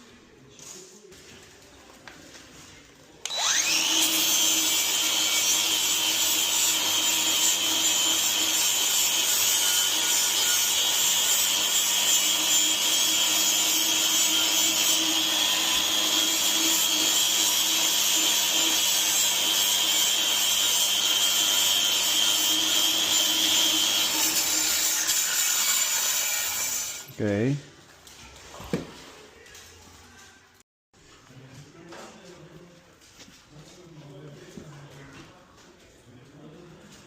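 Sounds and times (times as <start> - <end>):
electric power tool whining: 3.2 - 25.2.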